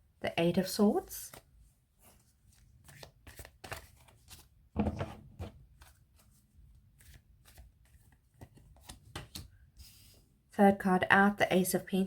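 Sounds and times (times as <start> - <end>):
cards being dealt: 2.8 - 4.5.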